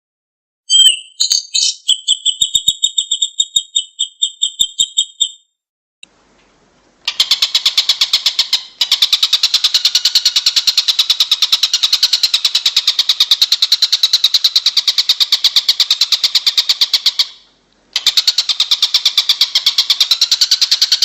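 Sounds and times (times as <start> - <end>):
buzzy rattling bird trill: 0.7 - 5.5, 7.1 - 17.4, 18.0 - 21.0
sharp high bird chirps: 0.7 - 5.6.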